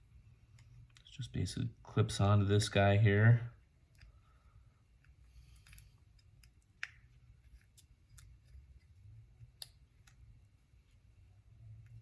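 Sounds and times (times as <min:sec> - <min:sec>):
low room hum: 0:00.0 - 0:12.0
small parts clicking together: 0:05.0 - 0:10.3.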